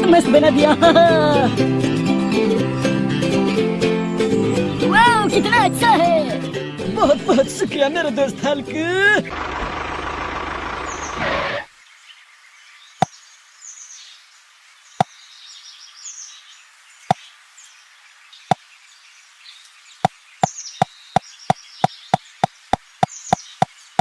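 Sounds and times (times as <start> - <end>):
loud steady noise: 9.3 - 11.7.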